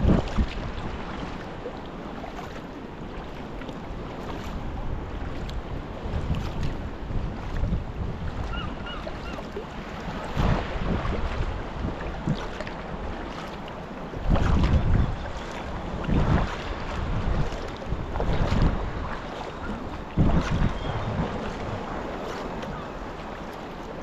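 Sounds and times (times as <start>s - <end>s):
wind buffeting microphone: 0.0s - 1.6s, 3.8s - 13.4s, 14.1s - 24.0s
water splashing around kayak: 0.0s - 24.0s.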